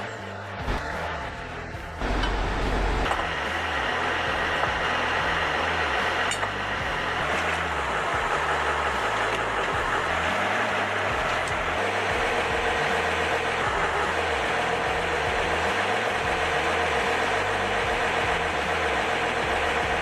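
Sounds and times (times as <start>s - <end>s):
background music: 0.0s - 20.0s
truck engine running: 0.0s - 20.0s.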